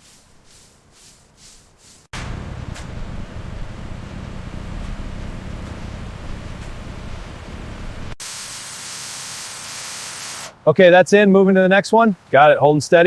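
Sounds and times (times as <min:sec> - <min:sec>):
steady hiss: 0:00.0 - 0:13.0
wind and water rumbling: 0:02.2 - 0:08.2.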